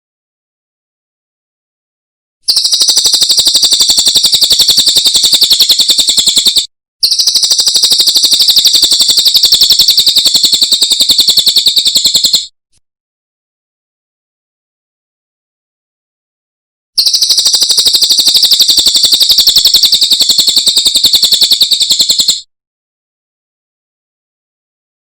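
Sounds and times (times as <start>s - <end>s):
bird chattering trill: 2.5s - 12.5s, 17.0s - 22.4s.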